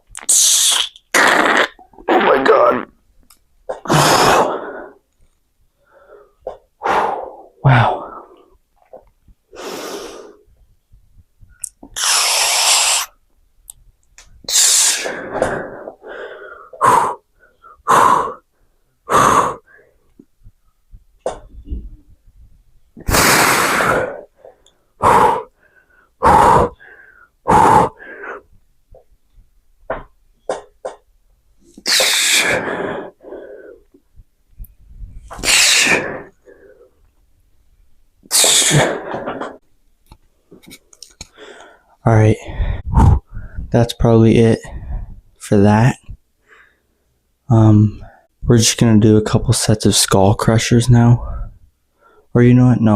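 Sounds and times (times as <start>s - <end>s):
man exhaling forcefully: 3.9s - 5.0s, 23.0s - 24.3s, 25.0s - 25.6s, 26.2s - 28.4s, 31.8s - 33.2s, 35.4s - 36.3s, 38.3s - 39.4s
man grunting: 7.6s - 8.2s.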